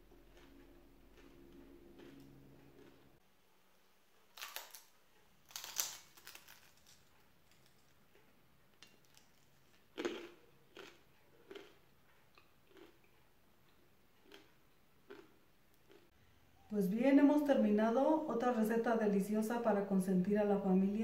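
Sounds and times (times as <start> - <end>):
crispy food crunching: 0.0 - 3.1, 4.2 - 16.1
soft chewing: 0.0 - 3.2, 4.2 - 16.2.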